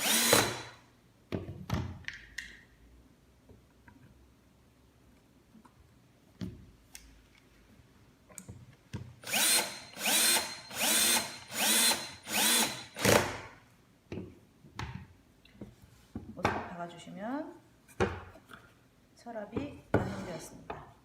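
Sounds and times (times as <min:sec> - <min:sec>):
power drill driving a screw: 0:00.0 - 0:00.8, 0:09.2 - 0:13.4.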